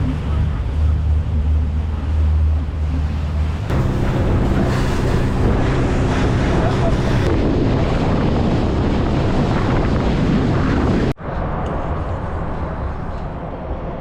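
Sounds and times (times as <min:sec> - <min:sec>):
boat motor humming: 0:00.0 - 0:11.1
steady rumble: 0:00.0 - 0:14.0
wind buffeting microphone: 0:00.0 - 0:14.0.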